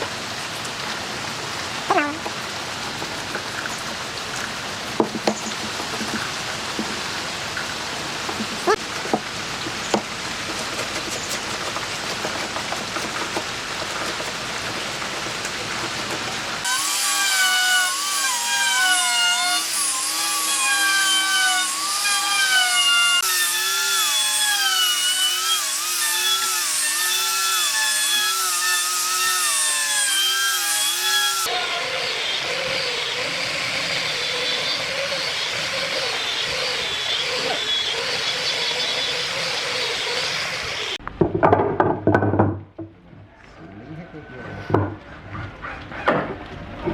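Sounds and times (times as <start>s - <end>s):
power tools cutting wood: 15.2s - 41.0s
whining motor biting into wood: 16.6s - 41.0s.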